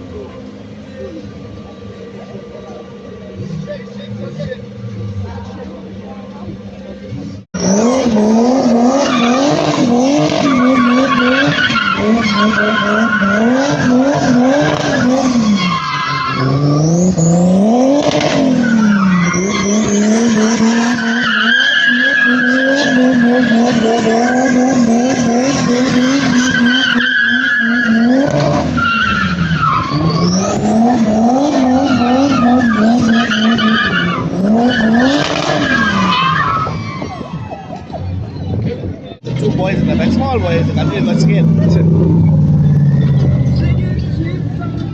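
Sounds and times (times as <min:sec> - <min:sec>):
car engine revving: 0:00.0 - 0:44.9
tyres squealing: 0:08.9 - 0:17.4, 0:18.1 - 0:38.5.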